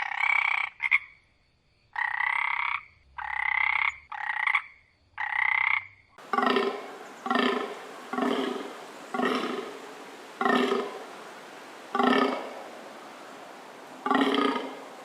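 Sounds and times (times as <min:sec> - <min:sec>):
raspy animal calls: 0:05.2 - 0:15.0
deeper animal call: 0:06.2 - 0:15.0.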